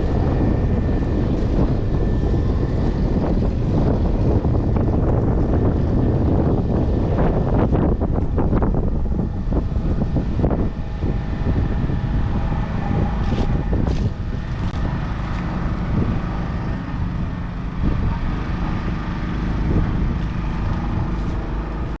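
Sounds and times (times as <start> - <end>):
diesel tractor engine running: 0.0 - 22.0
wind buffeting microphone: 0.0 - 22.0.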